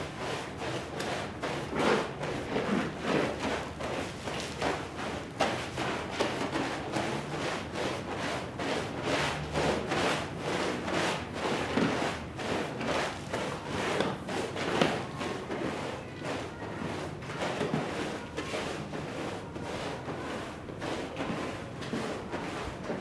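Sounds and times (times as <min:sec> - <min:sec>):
brush scrubbing a rug: 0:00.2 - 0:23.0.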